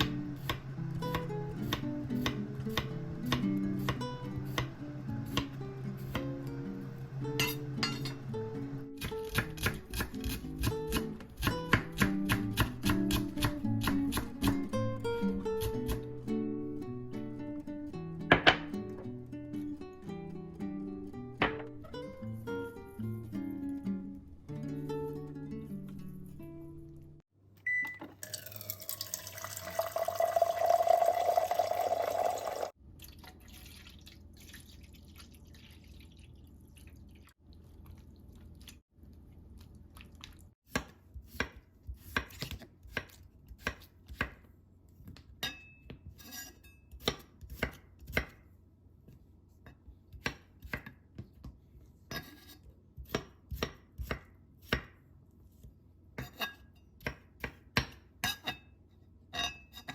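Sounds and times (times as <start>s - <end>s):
knife chopping on cutting board: 0.0s - 6.3s, 9.0s - 14.7s, 40.7s - 44.5s, 46.9s - 48.4s, 50.1s - 51.6s, 52.2s - 55.0s, 57.0s - 58.0s
running water: 28.2s - 32.7s.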